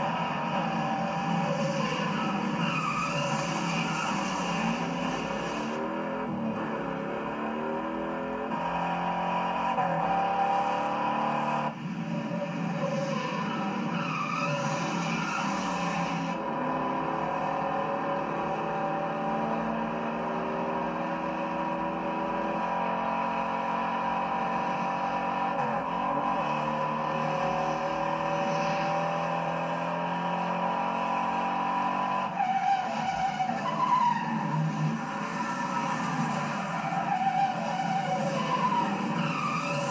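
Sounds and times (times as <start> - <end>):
car engines revving: 0.0 - 39.9
tyres skidding: 0.0 - 39.9.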